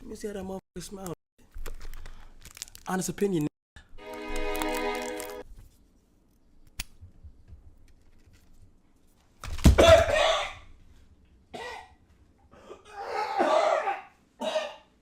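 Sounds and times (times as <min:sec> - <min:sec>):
man coughing: 0:11.6 - 0:12.0, 0:12.6 - 0:15.0.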